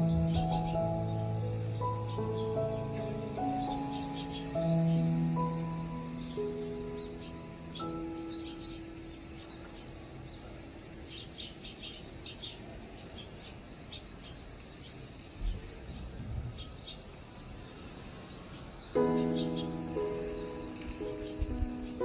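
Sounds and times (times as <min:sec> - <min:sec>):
soft background music: 0:00.0 - 0:11.5, 0:19.0 - 0:22.0
swallows chirping: 0:00.0 - 0:15.1, 0:18.3 - 0:22.0.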